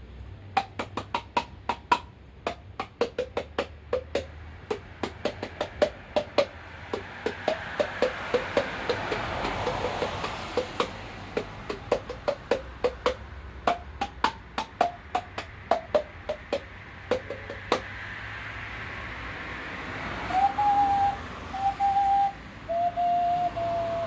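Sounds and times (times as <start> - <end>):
hand-beaten jaw percussion knocks: 0.6 - 18.0.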